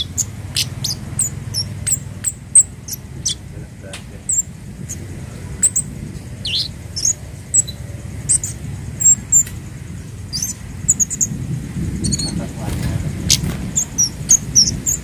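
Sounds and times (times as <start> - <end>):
bird chip calls: 0.0 - 15.0.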